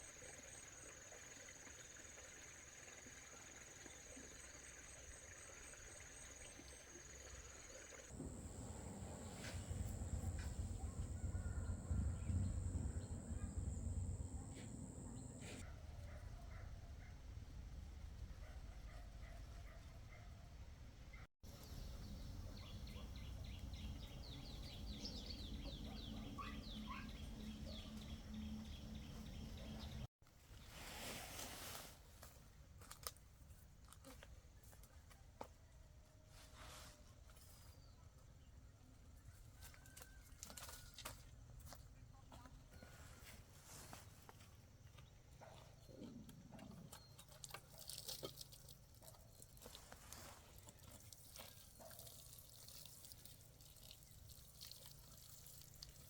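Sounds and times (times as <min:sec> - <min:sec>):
birds chirping: 0:07.7 - 0:15.6, 0:21.5 - 0:30.1
low rumble: 0:08.2 - 0:15.6
steady low hum: 0:08.2 - 0:15.6.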